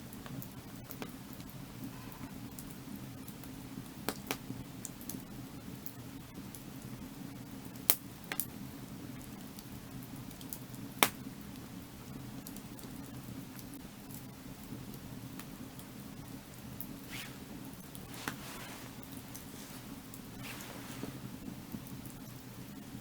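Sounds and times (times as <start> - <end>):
firewood crackling and popping: 0.0 - 23.0
low rush of fire: 10.0 - 23.0.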